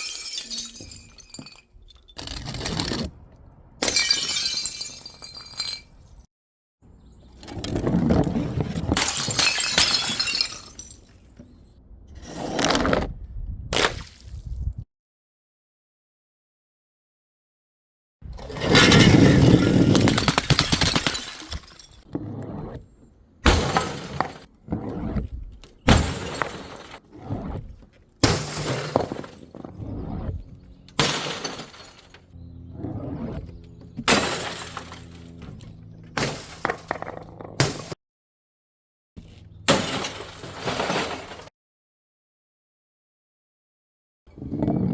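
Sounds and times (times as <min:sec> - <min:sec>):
glass shards clattering and tinkling: 0:00.0 - 0:02.4, 0:03.9 - 0:06.2, 0:20.2 - 0:22.0
glass bottles smashing: 0:00.0 - 0:02.5, 0:03.8 - 0:06.3, 0:09.0 - 0:11.2, 0:18.7 - 0:22.1, 0:25.9 - 0:27.0, 0:28.2 - 0:29.7, 0:31.0 - 0:32.2, 0:39.7 - 0:41.5.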